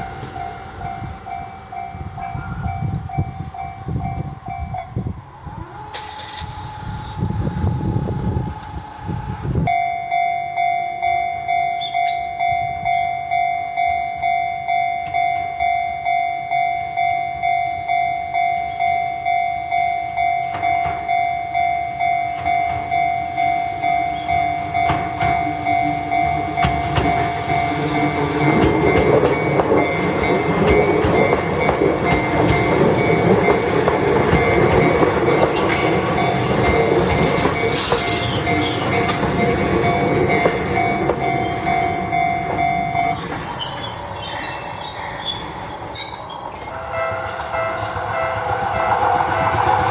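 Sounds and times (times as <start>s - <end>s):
level-crossing electronic bell: 9.7s - 49.9s
train wheels clattering over rail joints: 22.3s - 46.7s.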